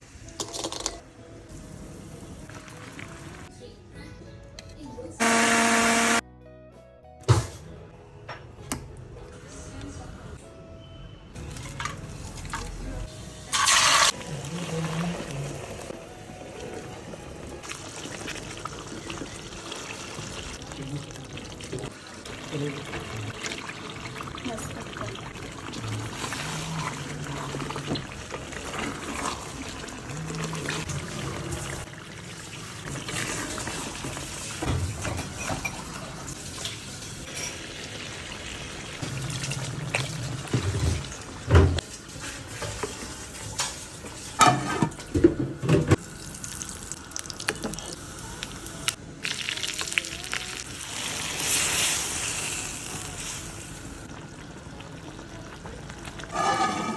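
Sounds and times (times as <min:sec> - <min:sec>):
liquid poured and stirred in pot: 0:56.0 - 0:56.9.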